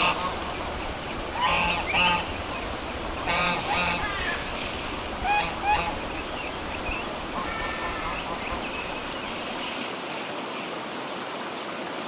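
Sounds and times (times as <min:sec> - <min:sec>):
duck quacking: 0:00.0 - 0:00.5, 0:01.3 - 0:02.4, 0:03.2 - 0:04.5, 0:05.2 - 0:06.2
steady background hiss: 0:00.0 - 0:12.0.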